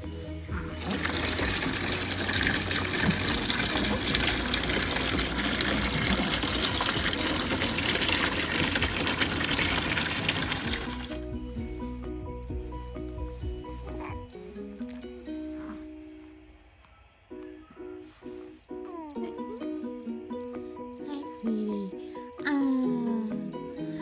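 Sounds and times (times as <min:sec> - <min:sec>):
water gushing into a bathtub: 0:00.6 - 0:11.2.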